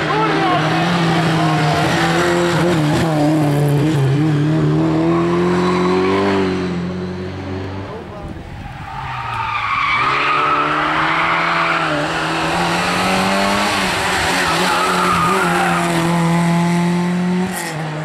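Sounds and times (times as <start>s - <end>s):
rally car engine at high revs: 0.0s - 8.1s, 9.8s - 18.0s
tyres squealing: 13.9s - 16.0s.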